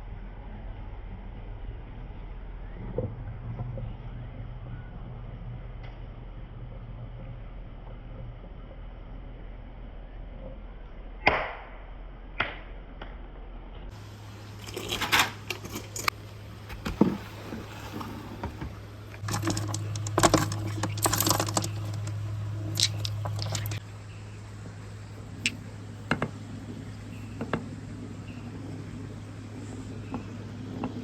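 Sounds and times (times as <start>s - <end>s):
marbles clacking on a marble run: 19.2s - 23.8s.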